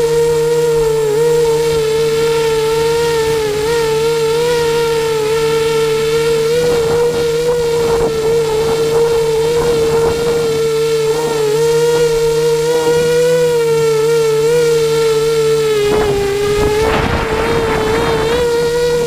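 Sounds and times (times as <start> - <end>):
quadcopter motors whining: 0.0 - 19.0
gusty rushing noise: 2.0 - 13.0, 15.7 - 19.0.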